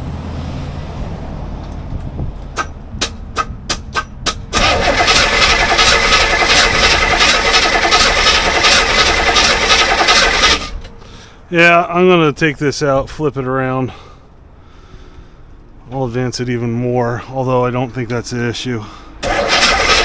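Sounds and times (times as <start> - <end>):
sharp clacks: 2.4 - 7.7
engine starter cranking: 2.6 - 11.2, 19.2 - 20.0.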